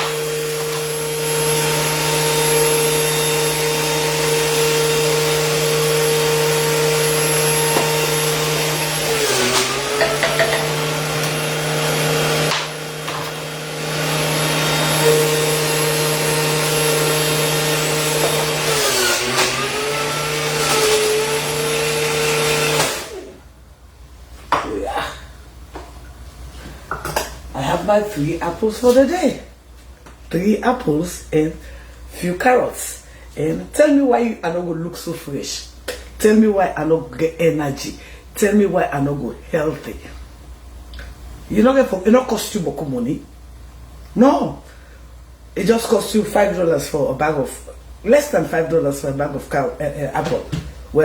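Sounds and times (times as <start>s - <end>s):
electric juicer motor running: 0.0s - 23.5s.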